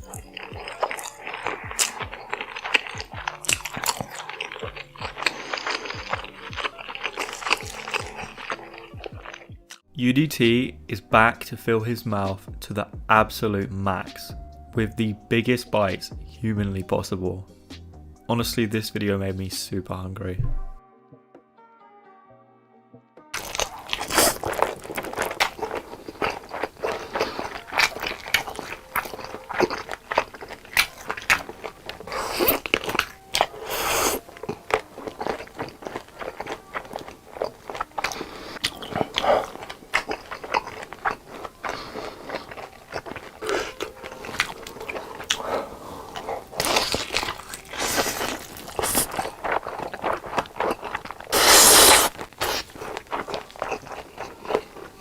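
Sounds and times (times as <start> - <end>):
person crunching and chewing: 0.0 - 9.8, 23.4 - 55.0.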